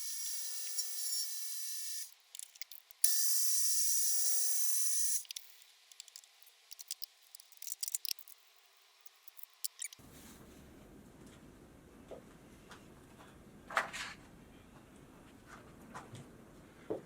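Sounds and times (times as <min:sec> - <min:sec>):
mill spindle whining: 0:00.0 - 0:02.1.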